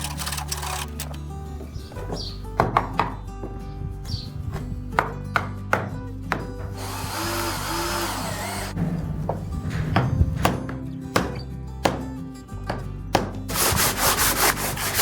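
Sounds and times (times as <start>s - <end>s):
tool working wood: 0.0s - 1.2s, 6.7s - 8.8s, 13.5s - 15.0s
background music: 0.0s - 15.0s.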